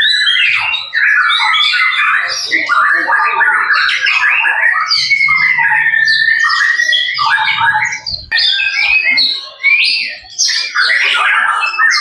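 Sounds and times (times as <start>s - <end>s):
songbird singing loudly: 3.6s - 12.0s.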